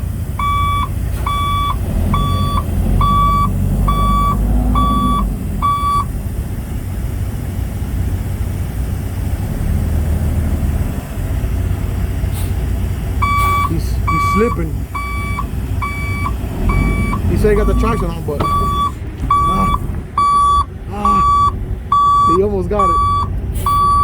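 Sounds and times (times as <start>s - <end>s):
truck reversing alarm beeping: 0.0s - 6.5s, 13.1s - 24.0s
diesel truck engine running: 0.0s - 24.0s.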